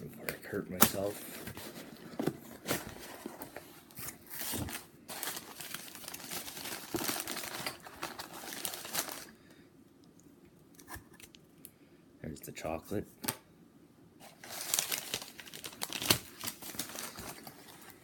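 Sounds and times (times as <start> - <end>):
packing material crinkling: 0.4 - 9.4, 14.2 - 18.0.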